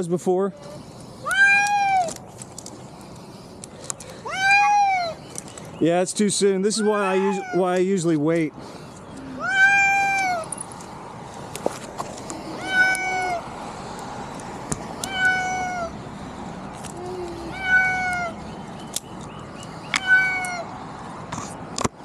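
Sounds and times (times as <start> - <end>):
cat meowing in distress: 0.6 - 2.1, 4.3 - 5.2, 6.8 - 7.7, 9.3 - 10.5, 12.4 - 13.4, 15.0 - 15.9, 17.0 - 18.4, 20.0 - 20.7.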